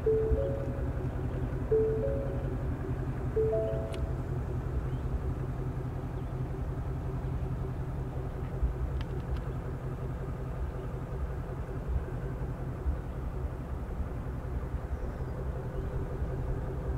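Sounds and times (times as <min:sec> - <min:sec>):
car engine idling: 0:00.0 - 0:16.9
faint light clicks: 0:08.4 - 0:09.5.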